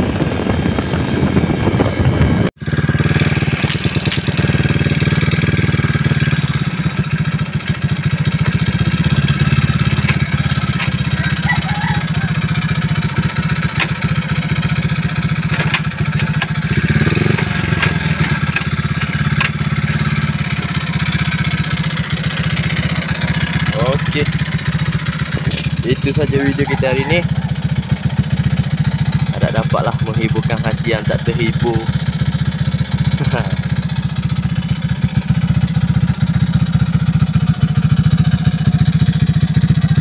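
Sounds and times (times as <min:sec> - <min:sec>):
wind rushing on microphone: 0:00.0 - 0:02.5
motorcycle engine idling: 0:00.0 - 0:40.0.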